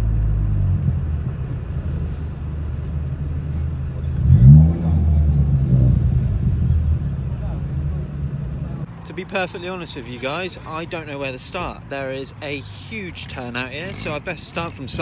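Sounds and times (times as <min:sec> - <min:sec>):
car engine running: 0:00.0 - 0:08.9
engine rev: 0:00.0 - 0:08.9.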